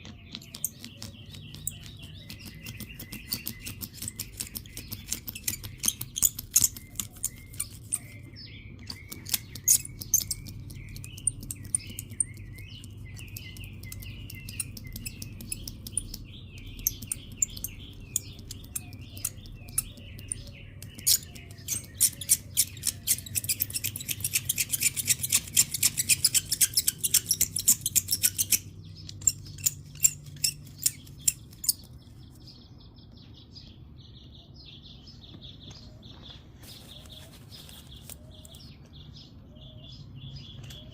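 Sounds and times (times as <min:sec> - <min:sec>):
sharp clicks and ticks: 0:00.0 - 0:32.0
small birds chirping: 0:00.0 - 0:40.9.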